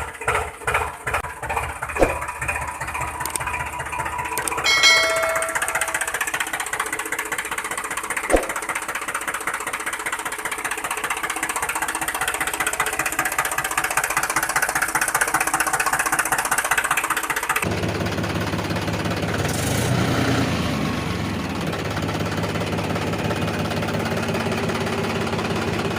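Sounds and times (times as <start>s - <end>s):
small motor rattling: 0.0s - 19.8s
sharp click: 2.0s - 2.2s, 8.3s - 8.6s.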